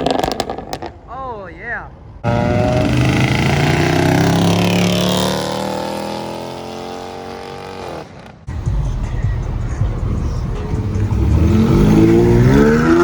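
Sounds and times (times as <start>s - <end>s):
car accelerating past: 9.8s - 13.0s.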